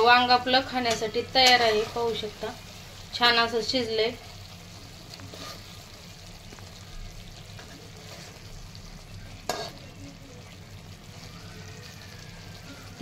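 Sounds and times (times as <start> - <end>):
food sizzling in pan: 0.0 - 13.0
metal spatula moving in pan: 0.6 - 2.6, 5.1 - 6.0, 7.5 - 8.6, 9.4 - 10.0.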